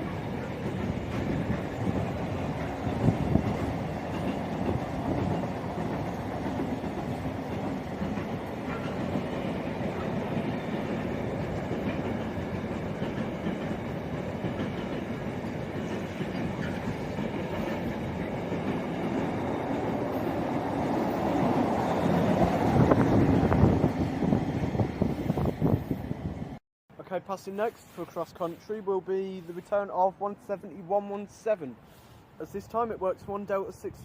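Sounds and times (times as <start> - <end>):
freight train wheels on rails: 0.0 - 26.6.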